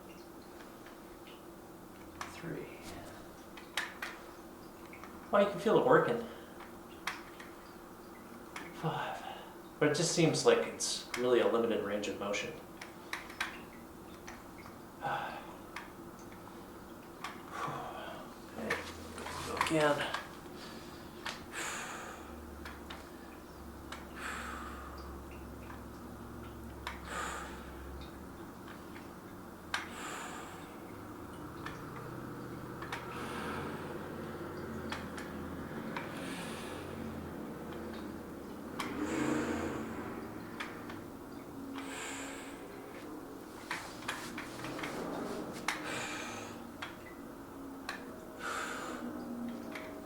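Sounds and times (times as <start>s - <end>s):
steady low hum: 0.0s - 50.0s
man breathing hard: 20.6s - 22.4s, 24.2s - 25.2s, 27.0s - 27.8s, 38.9s - 40.2s, 41.8s - 42.8s.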